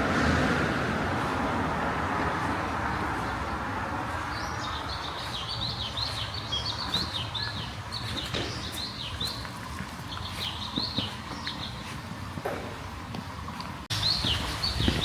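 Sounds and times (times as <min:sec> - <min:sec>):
road traffic noise: 0:00.0 - 0:15.0
small bird chirping: 0:04.3 - 0:11.9.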